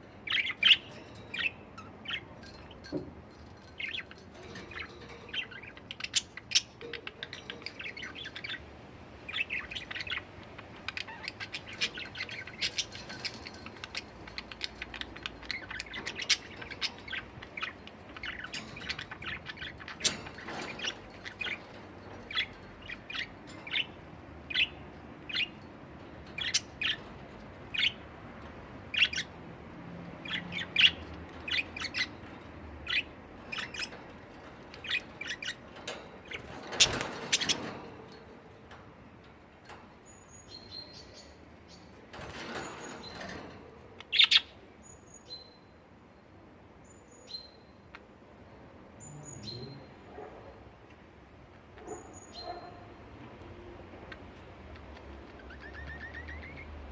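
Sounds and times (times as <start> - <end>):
budgerigars chirping: 54.0 - 56.9.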